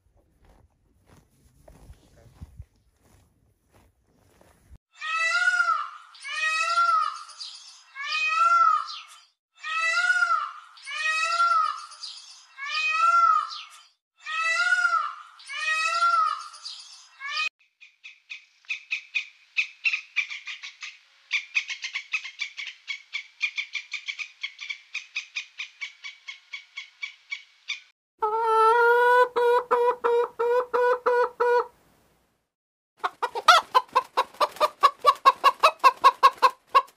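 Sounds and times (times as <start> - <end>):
hens clucking: 28.2 - 31.7, 33.0 - 36.9.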